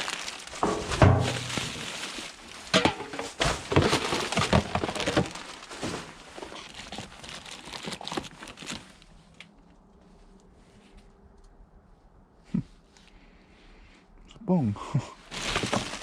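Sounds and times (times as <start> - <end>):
rustling and crinkling rubbish: 0.0 - 11.1, 15.2 - 16.0
items knocking and clattering: 0.5 - 7.1, 15.4 - 16.0.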